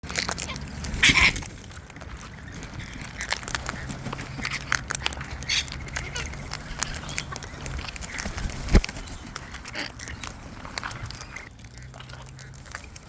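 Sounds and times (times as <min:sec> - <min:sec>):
birds pecking taps and clicks: 0:00.0 - 0:13.0
parrot screech: 0:00.5 - 0:01.5.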